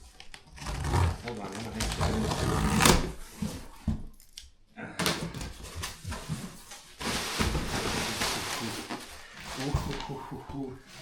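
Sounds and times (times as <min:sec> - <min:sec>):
packaging rustling: 0:05.4 - 0:10.2.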